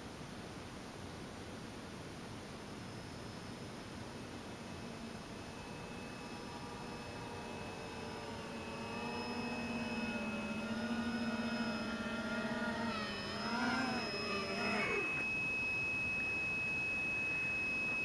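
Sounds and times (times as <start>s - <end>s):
steady high whine: 1.7s - 18.0s
model aircraft electric motor: 4.8s - 15.2s.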